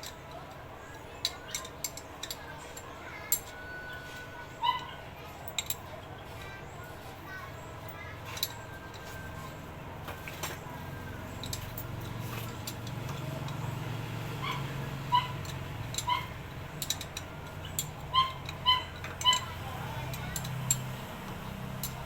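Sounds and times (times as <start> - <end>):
high-pitched animal yelps: 14.4 - 16.4, 18.1 - 19.6.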